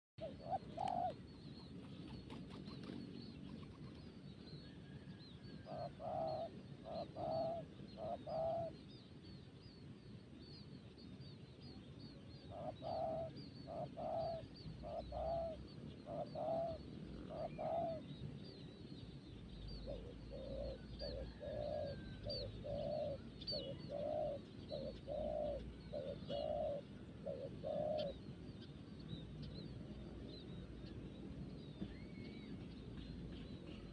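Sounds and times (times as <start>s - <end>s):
dove cooing: 0.2s - 4.0s, 5.6s - 8.8s, 12.5s - 18.1s, 19.7s - 28.3s.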